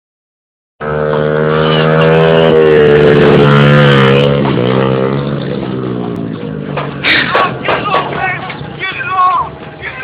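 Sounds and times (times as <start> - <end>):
dirt bike engine revving high: 0.8 - 7.3.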